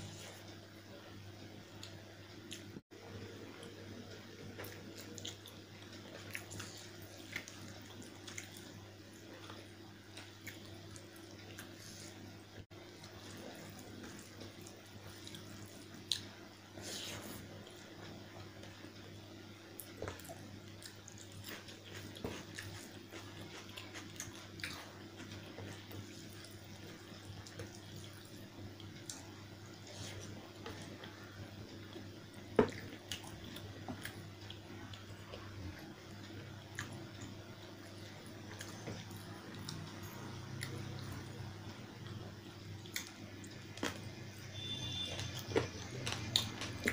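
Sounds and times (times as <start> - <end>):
wet chewing and mouth clicks: 19.8 - 29.3.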